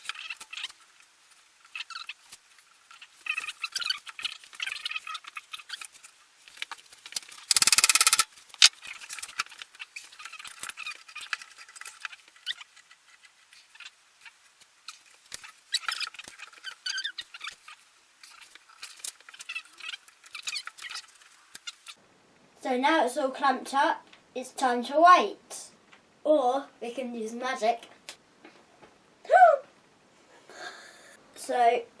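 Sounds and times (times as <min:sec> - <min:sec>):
clamps squeaking and chirping: 0:01.6 - 0:22.0
loud buzzy rattle: 0:07.3 - 0:08.3.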